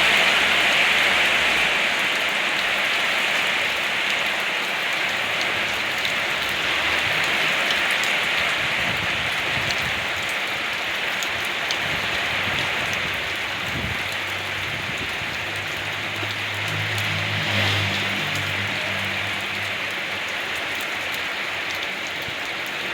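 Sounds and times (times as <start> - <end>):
rain falling on surfaces: 0.0 - 22.9
drips ticking: 10.2 - 22.8.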